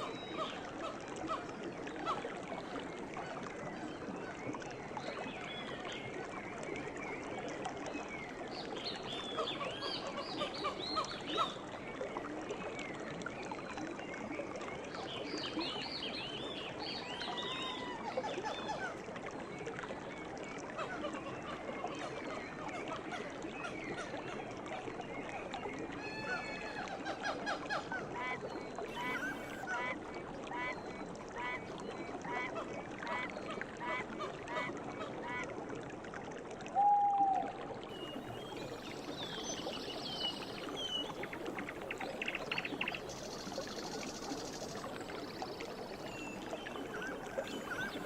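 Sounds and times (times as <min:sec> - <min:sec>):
river running: 0:00.0 - 0:48.0
birds chirping: 0:28.9 - 0:29.6, 0:38.0 - 0:48.0.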